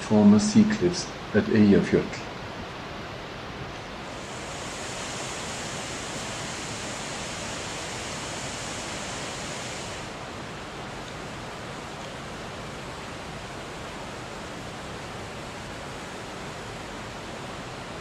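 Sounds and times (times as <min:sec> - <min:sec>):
waterfall rushing: 0:03.9 - 0:18.0.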